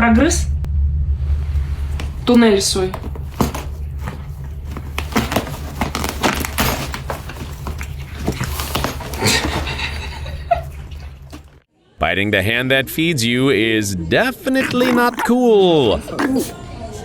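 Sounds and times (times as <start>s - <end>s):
steady low hum: 0.0s - 8.2s
pet scratching and chewing: 1.7s - 11.6s, 14.6s - 16.8s.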